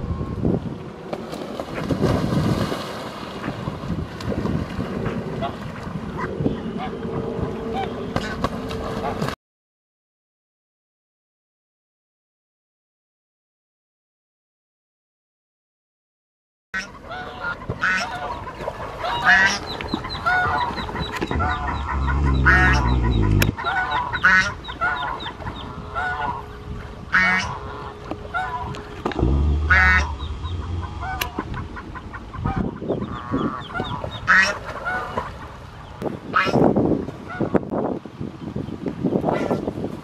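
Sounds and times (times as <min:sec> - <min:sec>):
geese honking: 0:16.8 - 0:35.3
low rumble: 0:21.2 - 0:24.2, 0:27.8 - 0:34.2.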